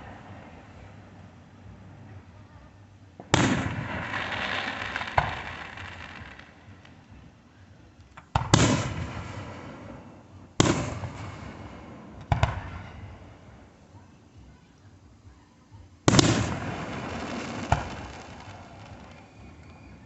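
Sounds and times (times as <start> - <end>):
fireworks booming: 3.1 - 7.4, 8.2 - 13.7, 16.1 - 20.0.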